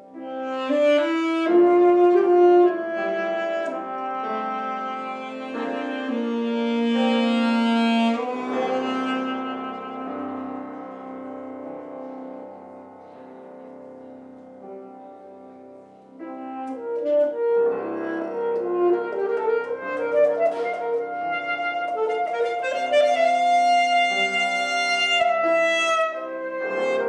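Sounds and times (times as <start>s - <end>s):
saxophone slow melody: 0.0s - 13.2s, 16.2s - 27.0s
piano accompaniment: 0.0s - 27.0s.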